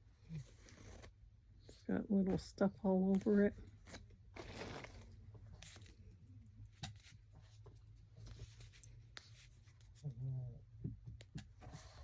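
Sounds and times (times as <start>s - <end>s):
packaging rustling: 3.2s - 6.2s.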